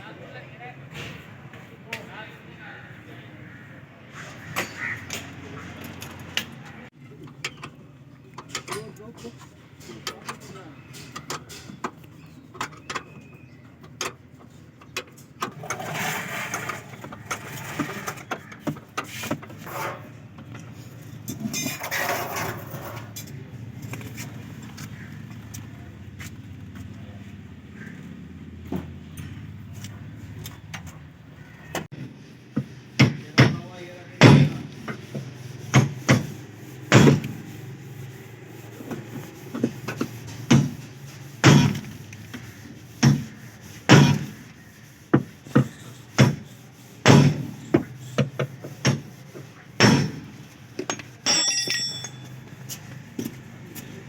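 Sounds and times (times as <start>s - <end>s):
short ringing clink: 51.2s - 52.3s.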